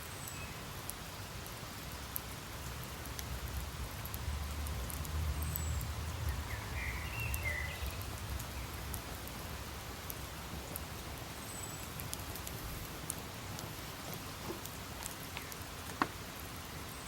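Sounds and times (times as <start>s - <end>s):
campfire wood crackling: 0.0s - 17.0s
steady fire hiss: 0.0s - 17.0s.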